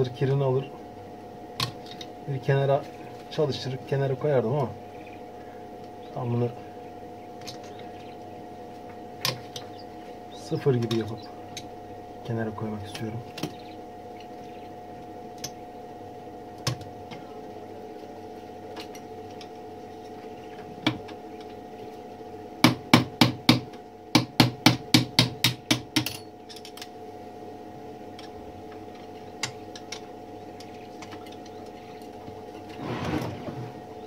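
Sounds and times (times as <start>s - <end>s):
steady background hum: 0.0s - 34.0s
short scrape: 32.7s - 33.8s.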